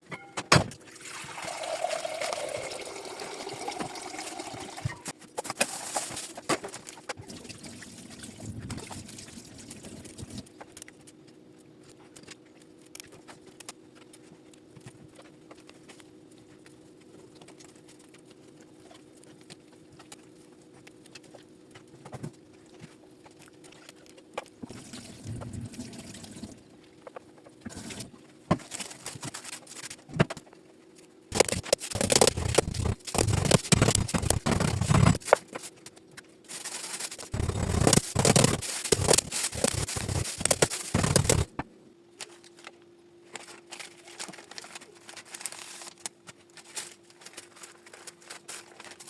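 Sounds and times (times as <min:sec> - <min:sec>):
low steady hum: 0:00.0 - 0:49.0
water running into a vessel: 0:00.8 - 0:05.0, 0:24.7 - 0:26.6.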